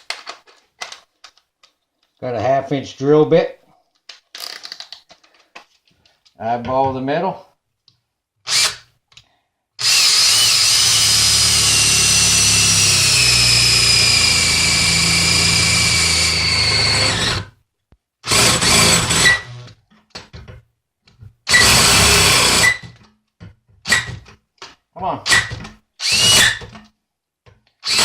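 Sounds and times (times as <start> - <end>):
electric drill boring into metal: 8.5 - 8.8, 9.8 - 17.5, 18.3 - 19.7, 21.5 - 22.9, 25.3 - 26.6.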